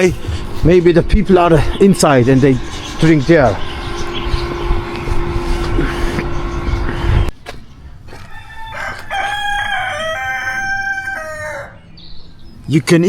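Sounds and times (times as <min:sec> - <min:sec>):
low rumble with steady hum: 0:00.0 - 0:08.1
rooster crowing: 0:08.1 - 0:12.0.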